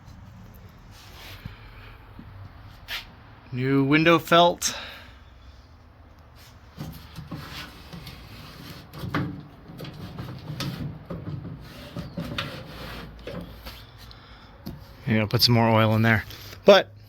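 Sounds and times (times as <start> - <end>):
glass scraping through window felt: 11.6 - 13.8.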